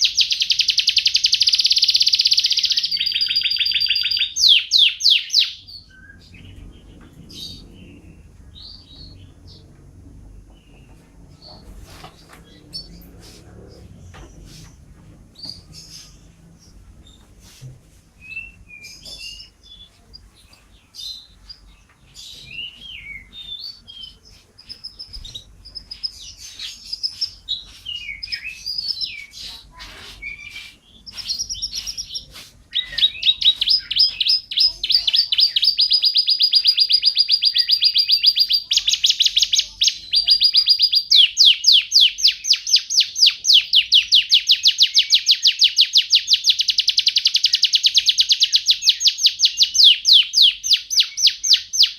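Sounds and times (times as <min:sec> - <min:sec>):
bird chirps and whistles: 0:00.0 - 0:06.3, 0:30.2 - 0:51.9.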